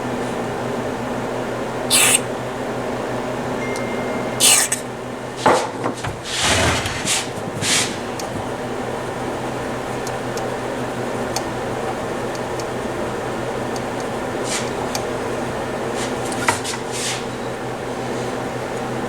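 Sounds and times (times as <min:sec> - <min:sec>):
room heater hum and hiss: 0:00.0 - 0:19.0
spray can hissing bursts: 0:01.9 - 0:02.2
small clicks: 0:09.9 - 0:10.6, 0:11.2 - 0:12.8.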